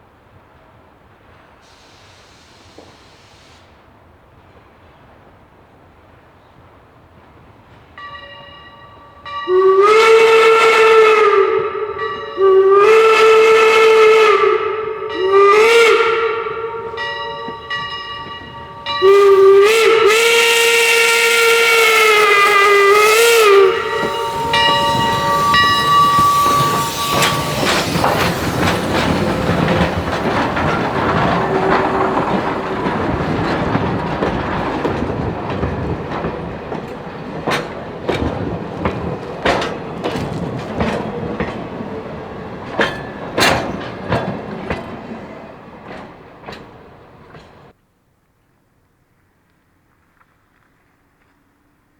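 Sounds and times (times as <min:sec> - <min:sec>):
steam whistle: 0:09.4 - 0:34.0
train wheels clicking over rail joints: 0:11.4 - 0:47.8.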